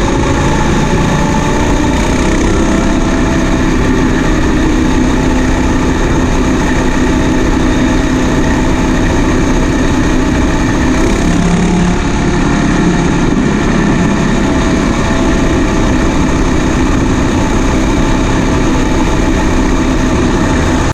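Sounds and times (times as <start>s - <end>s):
combine harvester droning: 0.0s - 20.9s.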